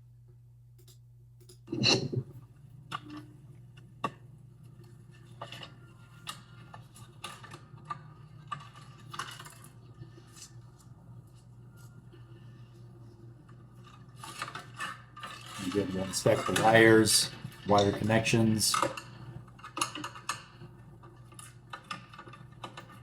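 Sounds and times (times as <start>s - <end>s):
steady low hum: 0.0s - 8.3s, 15.4s - 19.6s.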